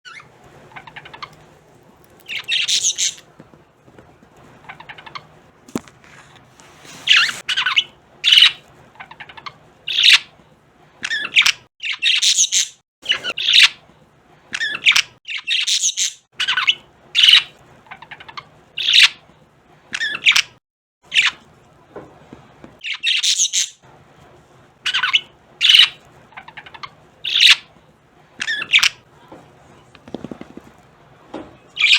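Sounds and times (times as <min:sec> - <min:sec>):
budgerigars chirping and squawking: 0:00.1 - 0:01.5, 0:02.1 - 0:03.3, 0:04.6 - 0:05.3, 0:06.9 - 0:10.4, 0:11.0 - 0:13.8, 0:14.5 - 0:19.2, 0:19.9 - 0:21.4, 0:22.8 - 0:23.8, 0:24.9 - 0:27.7, 0:28.4 - 0:29.0.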